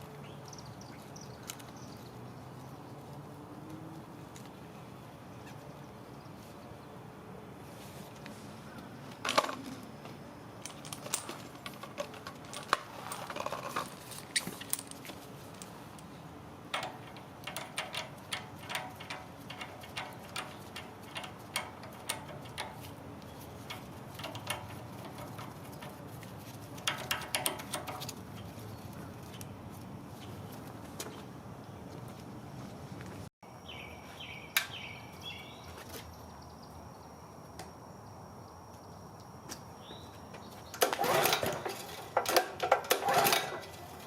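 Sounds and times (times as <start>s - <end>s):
small metal tools clinking: 10.6s - 16.2s.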